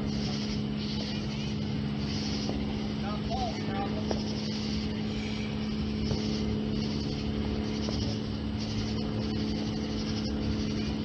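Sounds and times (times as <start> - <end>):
engine hum: 0.0 - 11.0
high pulsing hiss: 0.0 - 11.0.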